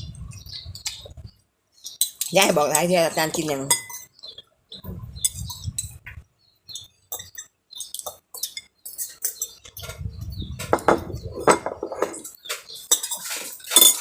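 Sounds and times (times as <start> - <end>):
spoons clinking on plates: 1.9 - 4.2, 6.8 - 9.9, 10.8 - 14.0.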